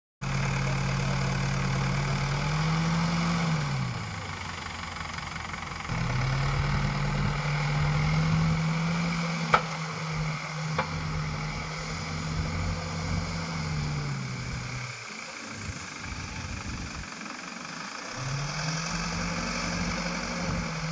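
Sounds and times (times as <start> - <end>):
diesel engine revving: 0.2 - 20.9
sharp knocks: 9.5 - 9.8.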